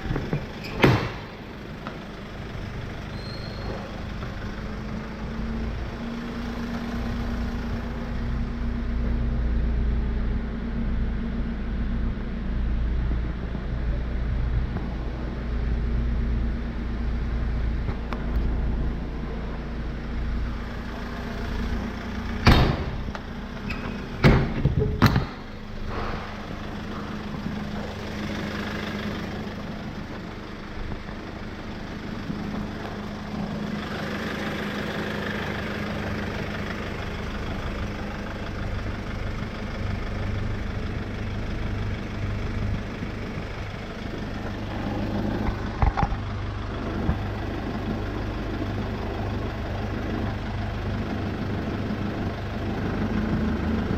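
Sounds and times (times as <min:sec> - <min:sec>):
truck engine idling: 0:00.0 - 0:53.9.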